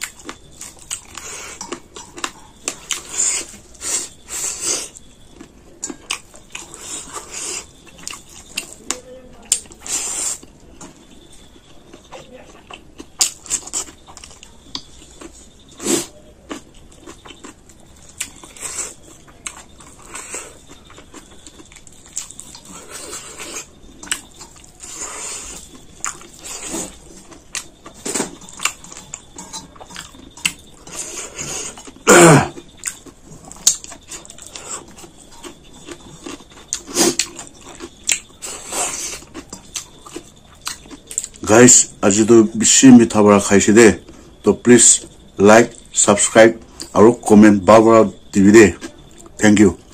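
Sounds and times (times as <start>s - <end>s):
chewing and crunching food: 0.0s - 49.9s
mouth sounds: 30.9s - 32.7s.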